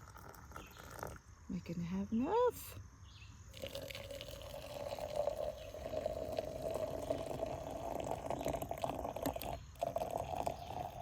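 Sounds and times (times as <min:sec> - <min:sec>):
hot water pouring: 0:00.0 - 0:01.2, 0:03.5 - 0:11.0.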